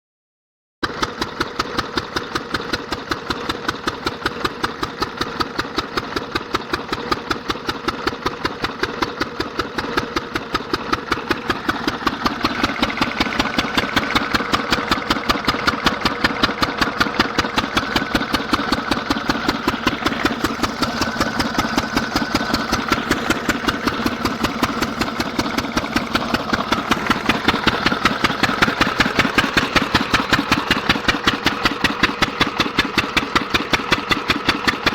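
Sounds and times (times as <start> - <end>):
diesel engine running: 0.8 - 34.9.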